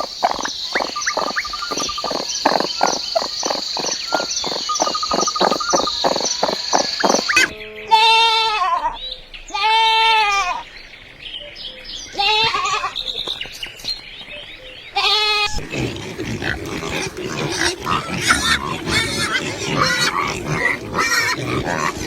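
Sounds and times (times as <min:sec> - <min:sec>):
farm animal noises: 0:00.0 - 0:22.0
goat bleating: 0:07.3 - 0:10.6, 0:12.2 - 0:13.0, 0:15.0 - 0:22.0.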